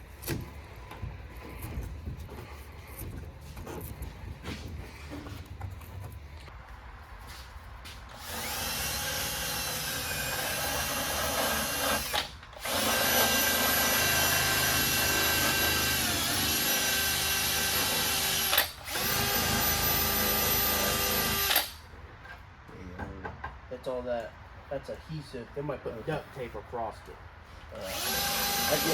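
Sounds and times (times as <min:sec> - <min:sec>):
handheld power tool running: 0:08.2 - 0:21.7, 0:27.8 - 0:28.9.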